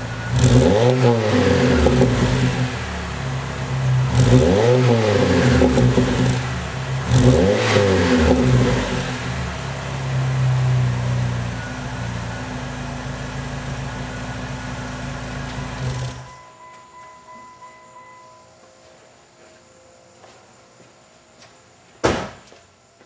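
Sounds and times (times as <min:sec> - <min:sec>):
car engine revving and idling: 0:00.0 - 0:16.3.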